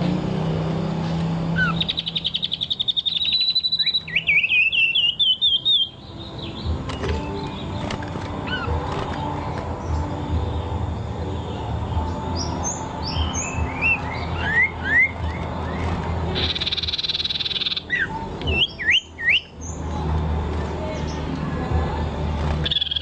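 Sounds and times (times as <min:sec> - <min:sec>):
buzzy bird trill: 0:00.1 - 0:23.0
songbird whistling: 0:01.5 - 0:09.2, 0:11.4 - 0:19.8, 0:22.6 - 0:23.0.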